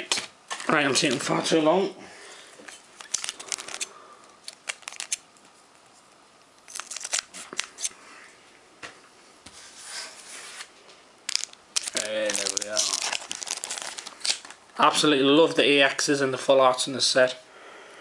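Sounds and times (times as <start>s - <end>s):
cards and packaging rustling: 3.0s - 5.2s, 6.6s - 7.9s, 11.3s - 14.8s.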